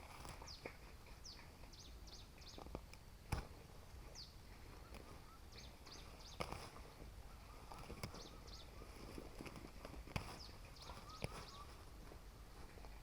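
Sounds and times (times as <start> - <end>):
faint bird chirps: 0.3 - 2.8, 3.8 - 13.0.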